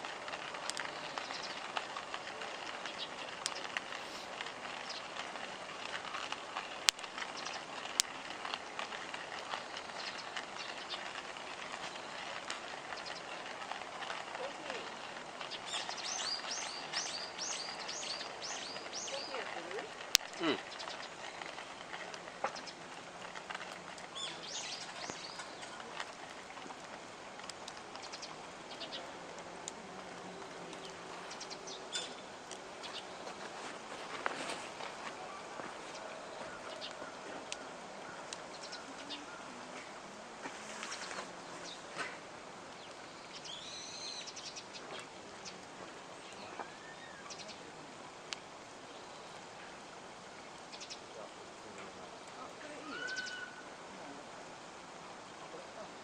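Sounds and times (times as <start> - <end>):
campfire crackling: 0.0 - 56.0
faint outdoor ambience: 0.0 - 56.0
small birds chirping: 0.1 - 40.0, 40.6 - 54.3.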